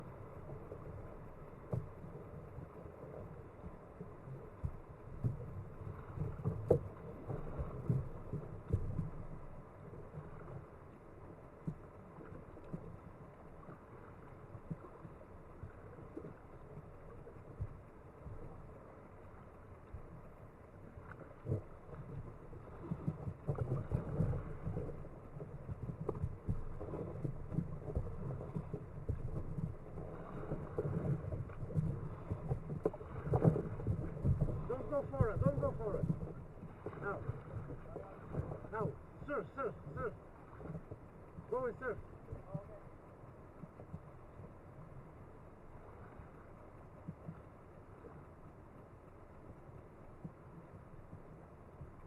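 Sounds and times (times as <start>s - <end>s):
paddle strokes in water: 0.0s - 52.0s
water knocking against hull: 1.5s - 2.6s, 4.6s - 10.5s, 17.4s - 18.5s, 21.0s - 42.8s.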